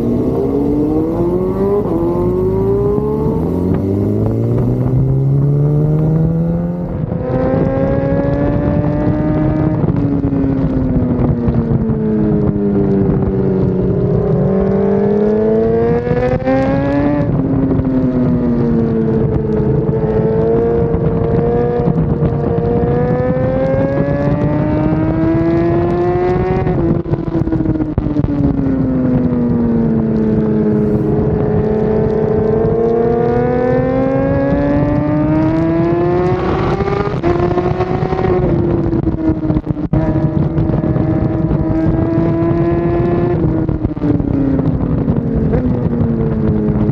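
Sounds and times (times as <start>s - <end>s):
motorcycle engine revving: 0.0s - 46.9s
wind noise: 0.0s - 46.9s
wet road noise: 29.2s - 42.2s.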